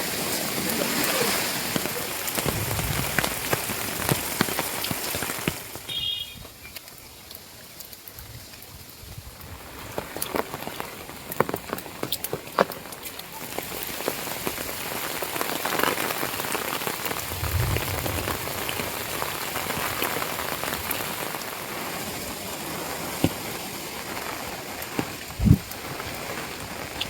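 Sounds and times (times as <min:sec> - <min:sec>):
heavy rain falling: 0:00.0 - 0:27.0
dull low thump: 0:02.4 - 0:04.3, 0:17.2 - 0:19.0.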